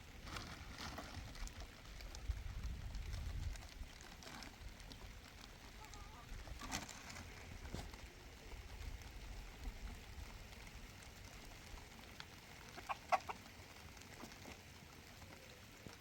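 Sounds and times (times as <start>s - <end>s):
chicken clucking: 5.7s - 6.7s, 12.6s - 14.4s.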